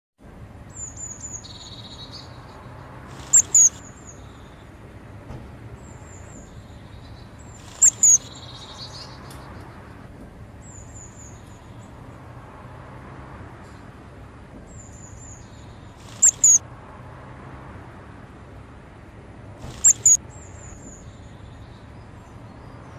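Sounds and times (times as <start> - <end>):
high bird chirps: 0.7 - 4.6, 6.0 - 9.5, 14.8 - 16.6, 19.6 - 21.8.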